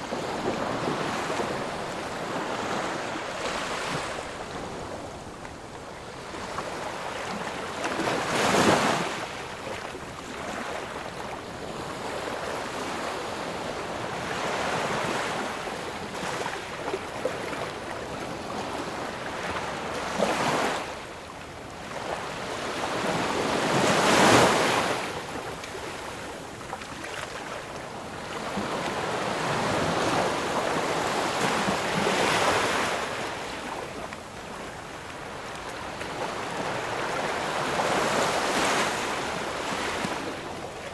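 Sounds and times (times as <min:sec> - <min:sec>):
ocean waves breaking: 0:22.2 - 0:40.9.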